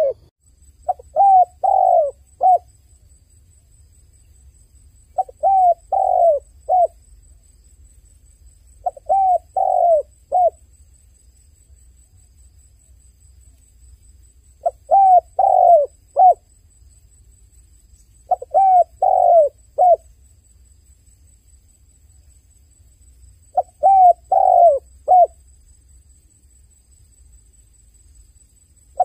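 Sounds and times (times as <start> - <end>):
dove cooing: 0.0 - 0.3, 0.9 - 2.7, 5.2 - 7.0, 8.8 - 10.6, 14.6 - 16.5, 18.3 - 20.0, 23.5 - 25.4.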